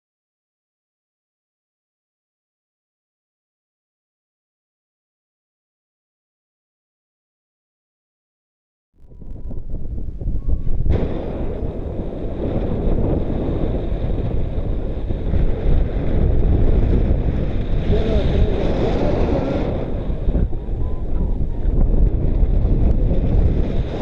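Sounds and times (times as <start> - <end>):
wind buffeting microphone: 9.0 - 24.0.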